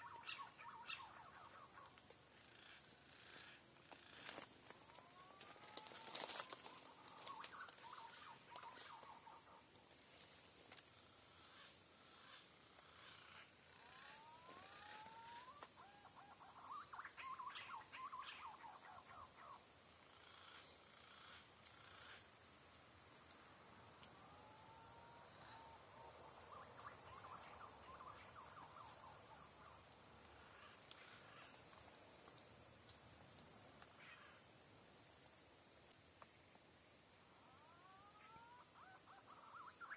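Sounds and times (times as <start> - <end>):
whistling bird calls: 14.2 - 19.6.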